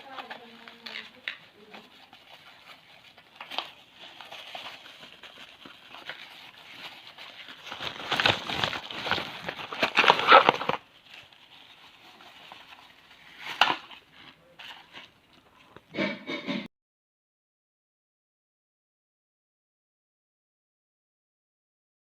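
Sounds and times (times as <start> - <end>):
packaging crinkling and rustling: 0.0 - 15.9.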